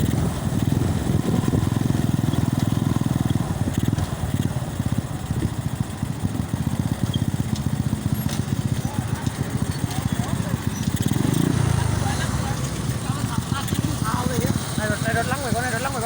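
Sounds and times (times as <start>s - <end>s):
wind buffeting microphone: 0.0s - 3.9s
motorcycle engine running: 0.0s - 16.0s.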